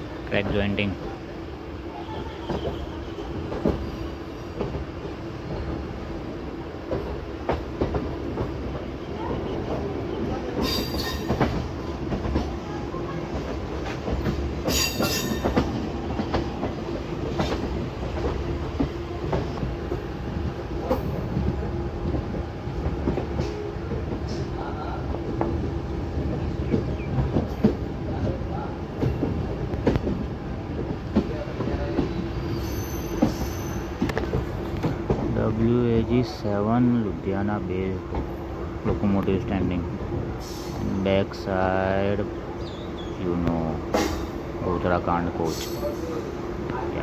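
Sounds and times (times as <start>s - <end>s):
high-pitched wheel squeals: 32.5s - 33.9s.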